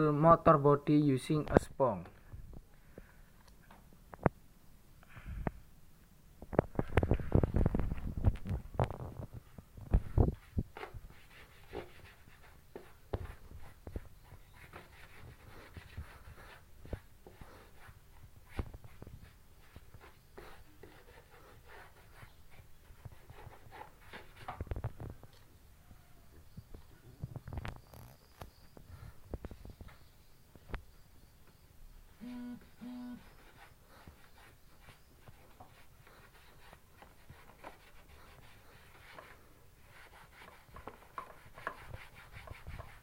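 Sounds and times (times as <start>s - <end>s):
sponge rubbing on bodywork: 10.0s - 24.5s, 33.1s - 43.0s.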